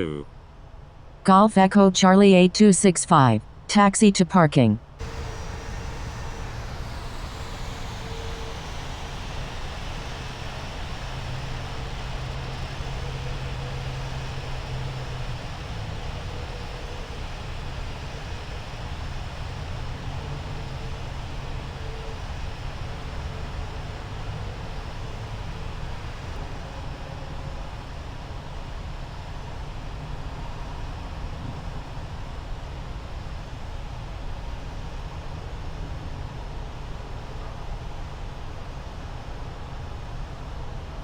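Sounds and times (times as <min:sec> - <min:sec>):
faint high whine: 0:04.9 - 0:41.0
jet engine rumble: 0:05.0 - 0:35.2.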